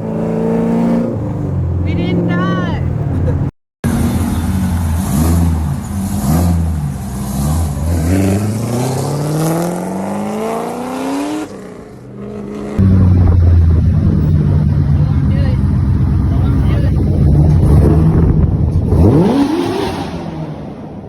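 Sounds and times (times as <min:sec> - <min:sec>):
car engine revving and accelerating: 0:00.0 - 0:21.0
loud low rumble: 0:12.8 - 0:19.2.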